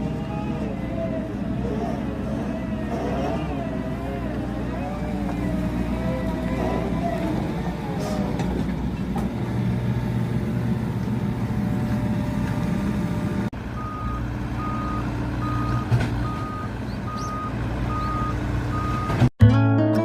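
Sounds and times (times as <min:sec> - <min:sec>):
excavator engine running: 0:00.0 - 0:19.3
warning alarm beeping: 0:13.8 - 0:19.3
guitar music: 0:19.4 - 0:20.0.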